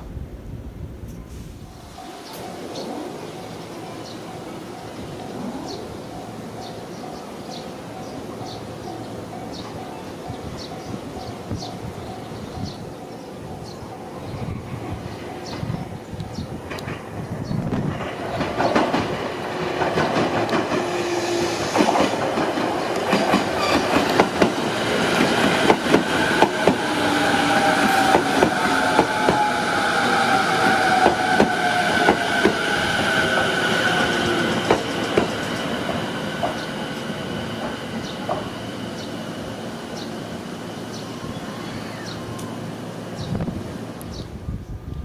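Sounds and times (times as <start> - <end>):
train wheels clicking over rails: 16.6 - 41.0.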